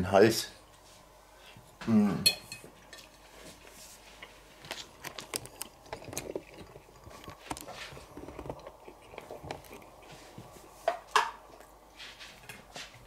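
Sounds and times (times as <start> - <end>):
person chewing: 3.6 - 13.0.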